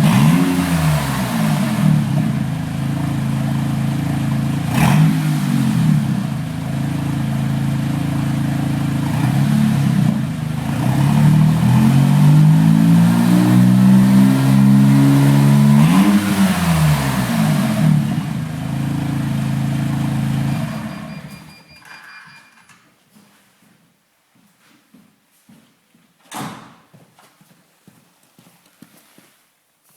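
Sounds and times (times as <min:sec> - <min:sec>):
car engine idling and revving: 0:00.0 - 0:21.3.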